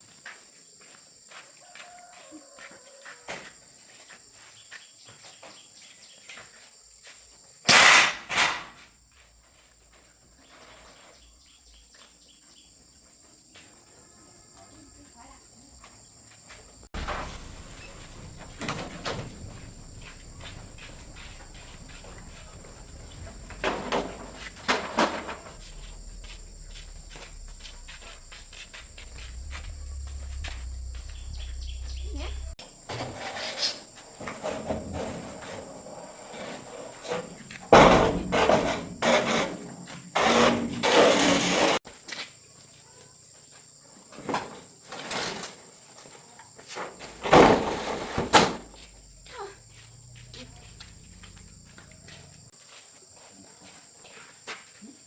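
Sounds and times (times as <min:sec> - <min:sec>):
crickets chirping: 0:00.0 - 0:55.0
loud knocks: 0:17.0 - 0:32.6.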